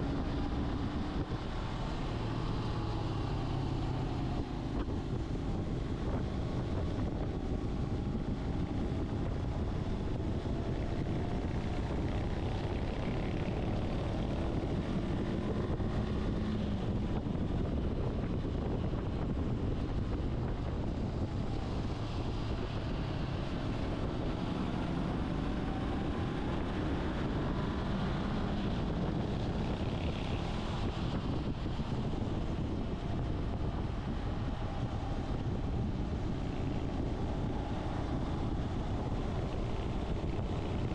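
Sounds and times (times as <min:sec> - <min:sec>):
wind rush over microphone: 0:00.0 - 0:40.9.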